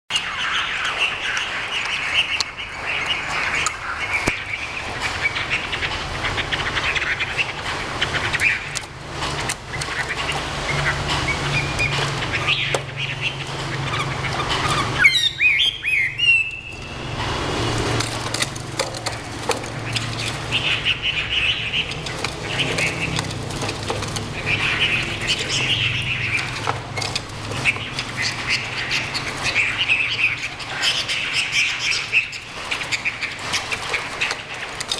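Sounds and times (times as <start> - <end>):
songbird warbling: 9.7 - 17.2, 19.2 - 23.3, 24.2 - 34.8.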